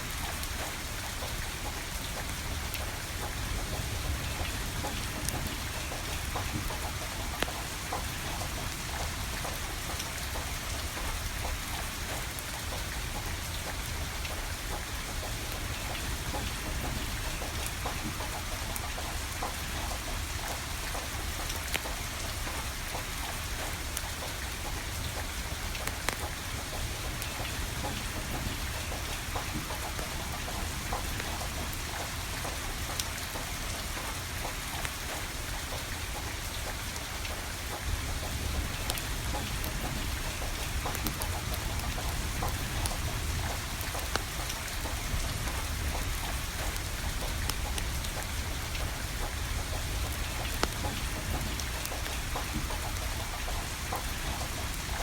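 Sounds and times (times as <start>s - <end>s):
steady rain falling: 0.0s - 55.0s
wood fire crackling: 37.7s - 55.0s.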